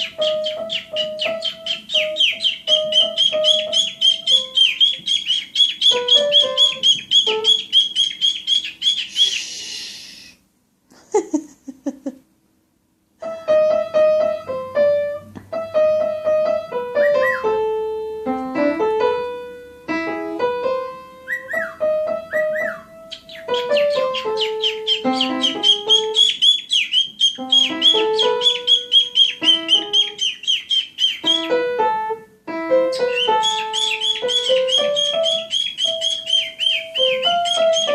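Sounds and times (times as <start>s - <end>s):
piano music: 0.0s - 8.2s, 13.2s - 26.4s, 27.4s - 37.9s
cockatiel chirping: 0.0s - 10.4s, 17.0s - 17.6s, 21.2s - 31.8s, 32.7s - 37.9s
brief hiss: 9.2s - 10.4s.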